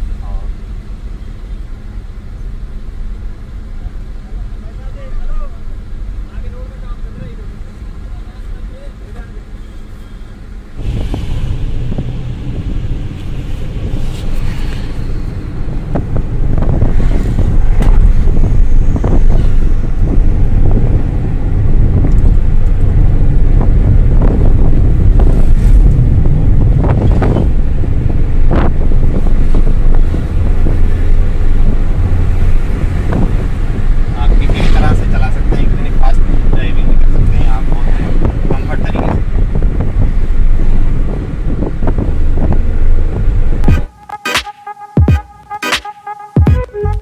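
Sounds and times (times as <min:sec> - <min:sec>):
car engine and road rumble: 0:00.0 - 0:47.0
wind buffeting microphone: 0:10.5 - 0:43.8.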